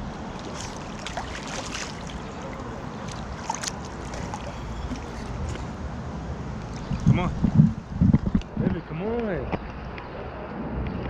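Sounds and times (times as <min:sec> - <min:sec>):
pool water lapping and splashing: 0:00.0 - 0:07.1
wind rumbling on microphone: 0:00.0 - 0:11.0.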